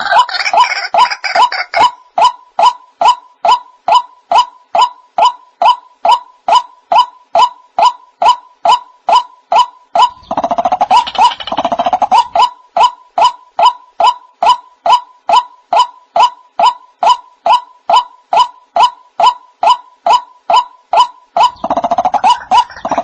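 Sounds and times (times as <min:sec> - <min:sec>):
bird rapid chattering: 0:00.0 - 0:02.0, 0:10.0 - 0:12.6, 0:20.5 - 0:23.0
bird calling repeated notes: 0:00.0 - 0:23.0.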